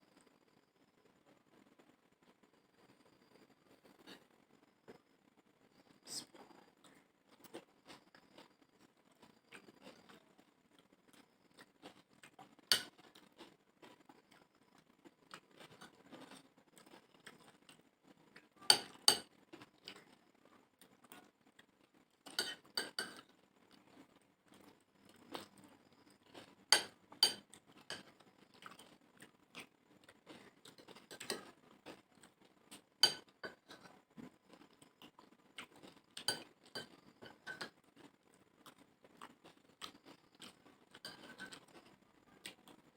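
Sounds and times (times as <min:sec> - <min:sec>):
spoon clinking against plates: 0:18.7 - 0:19.3, 0:22.3 - 0:23.2, 0:26.7 - 0:28.1, 0:33.0 - 0:33.9, 0:36.2 - 0:37.8, 0:41.0 - 0:41.6.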